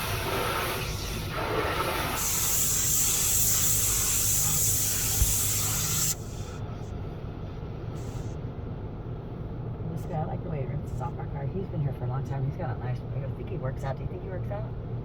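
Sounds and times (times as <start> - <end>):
high-pressure water spray hissing: 0.0 - 6.6.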